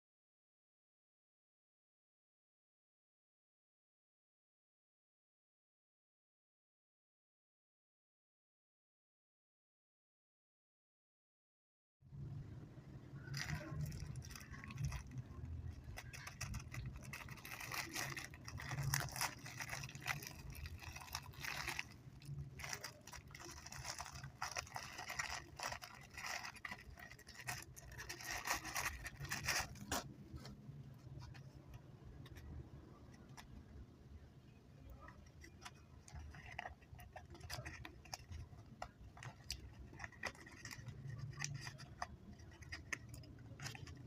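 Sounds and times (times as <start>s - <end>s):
chewing candy close up: 13.3s - 30.2s, 35.2s - 44.0s.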